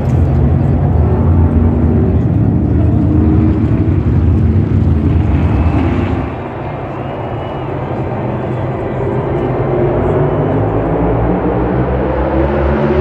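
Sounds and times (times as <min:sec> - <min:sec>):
race car engines rumbling: 0:00.0 - 0:13.0.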